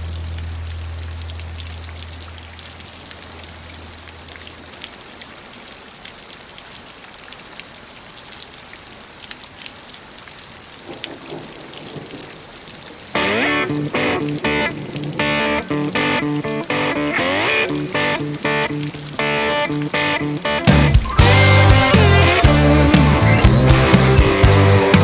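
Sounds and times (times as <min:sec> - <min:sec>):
steady rain falling: 0:00.0 - 0:25.0
blues song with guitar: 0:13.1 - 0:25.0.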